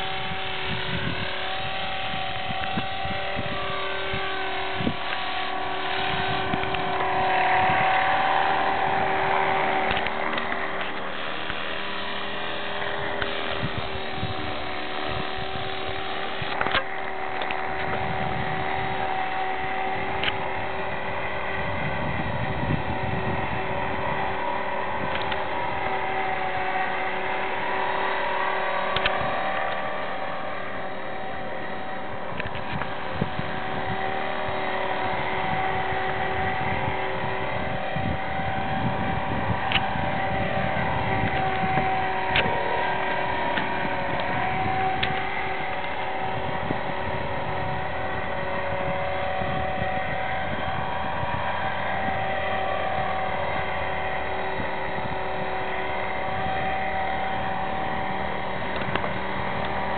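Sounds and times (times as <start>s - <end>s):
rc helicopter motor whine: 0.0s - 59.9s
rotor whoosh: 0.0s - 59.9s
sharp clicks: 9.8s - 12.0s, 28.9s - 29.8s.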